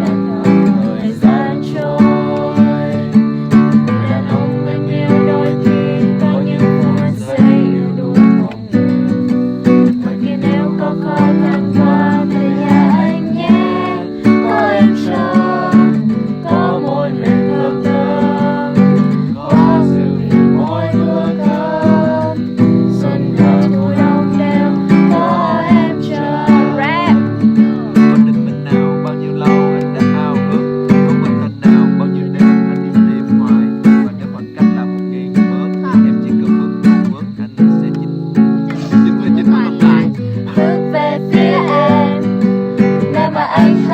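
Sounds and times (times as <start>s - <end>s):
person singing: 0.0s - 8.8s, 9.9s - 28.7s, 38.7s - 43.9s
acoustic guitar strumming: 0.0s - 43.9s.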